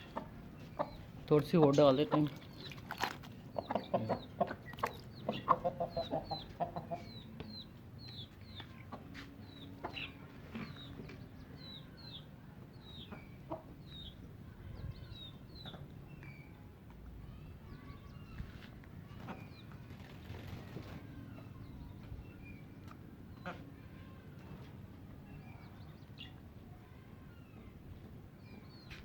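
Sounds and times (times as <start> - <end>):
chickens clucking: 0.0 - 16.0, 22.8 - 23.7.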